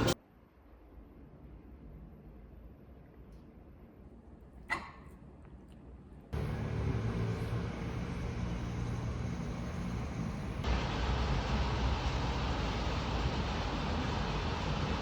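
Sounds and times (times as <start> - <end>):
hiss: 6.4 - 15.0
vehicle rumbling hum: 6.4 - 15.0.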